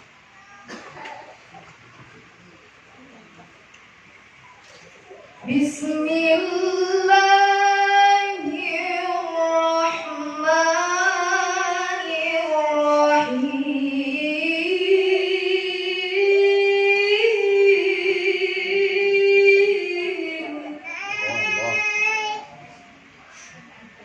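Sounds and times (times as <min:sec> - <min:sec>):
woman chanting recitation: 0:05.3 - 0:21.0.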